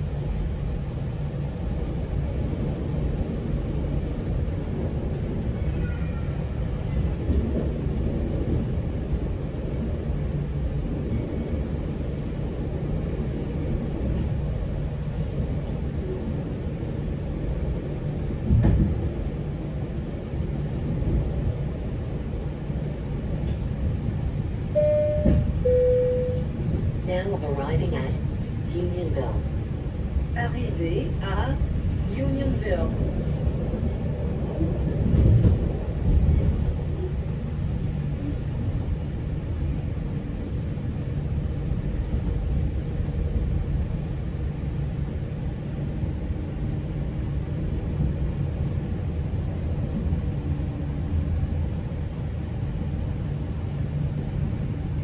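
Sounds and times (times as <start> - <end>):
passenger train rumbling: 0.0 - 55.0.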